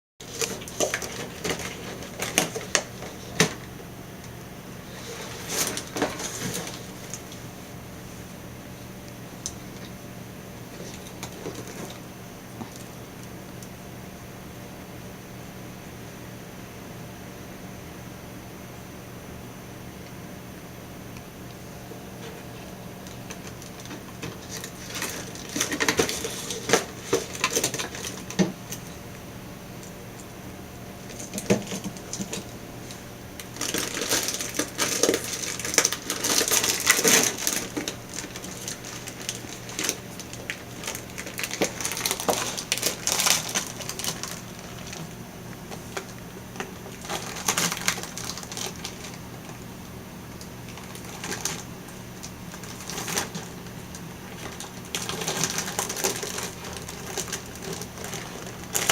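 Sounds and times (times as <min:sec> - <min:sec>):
low household hum: 0:00.2 - 0:58.9
cat clattering and rustling: 0:05.0 - 0:07.2, 0:23.4 - 0:28.9.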